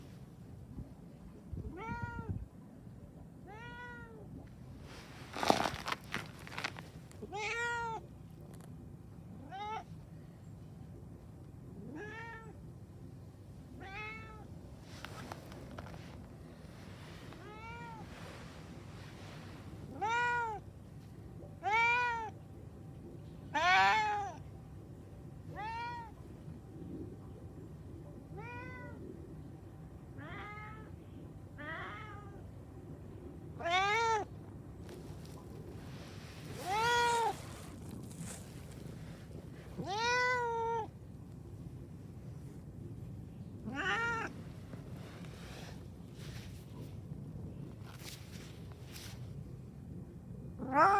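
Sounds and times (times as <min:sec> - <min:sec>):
cat meowing: 0:07.2 - 0:08.0, 0:36.6 - 0:38.2, 0:39.8 - 0:40.9, 0:43.6 - 0:44.4, 0:50.6 - 0:50.9.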